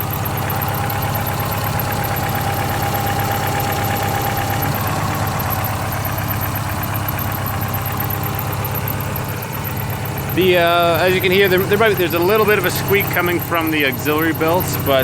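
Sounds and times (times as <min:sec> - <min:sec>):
car engine idling: 0:00.0 - 0:15.0
drive belt squeak: 0:00.0 - 0:15.0.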